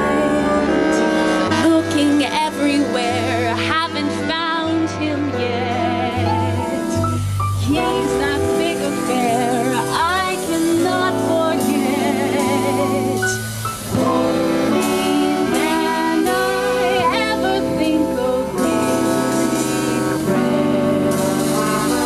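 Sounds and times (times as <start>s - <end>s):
swing band music: 0.0s - 22.0s.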